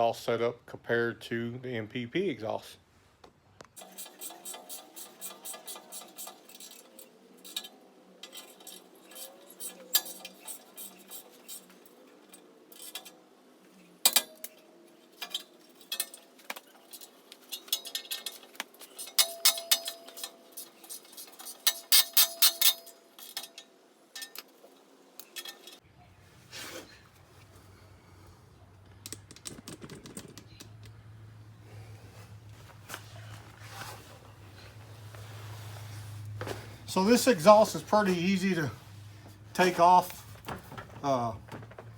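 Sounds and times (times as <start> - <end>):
metal tools clinking: 3.8 - 13.2, 13.8 - 25.8.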